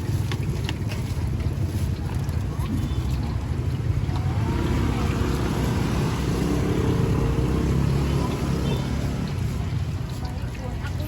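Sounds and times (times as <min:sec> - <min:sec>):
vehicle engine running: 0:04.0 - 0:09.9.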